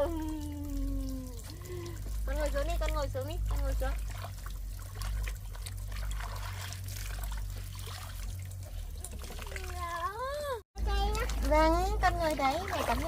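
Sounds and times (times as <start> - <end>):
bath water trickling: 0.0 - 13.0
small water splashes: 0.0 - 13.0
steady low hum: 0.0 - 13.0.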